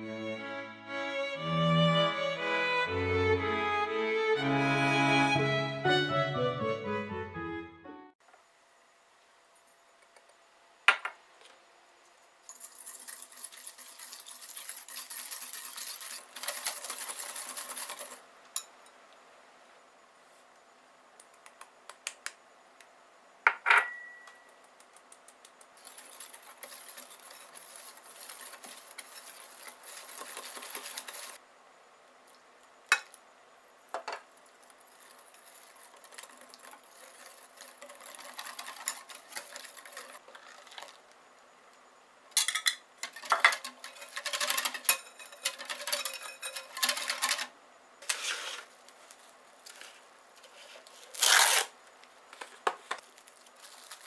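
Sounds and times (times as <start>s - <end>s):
utensil clatter: 12.5s - 18.2s, 25.8s - 31.4s, 34.9s - 41.0s, 42.4s - 48.7s
utensil clinking against bowl: 42.4s - 47.4s.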